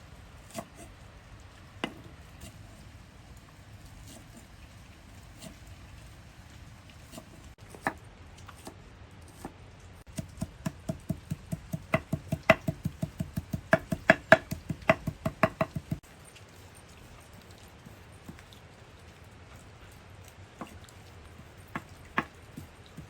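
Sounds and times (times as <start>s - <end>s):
knife chopping on cutting board: 7.1s - 8.0s, 10.1s - 16.0s, 21.8s - 23.0s.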